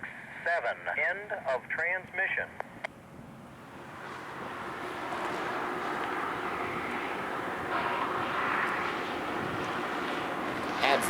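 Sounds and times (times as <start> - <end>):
rail grinder train rushing: 3.5 - 11.0.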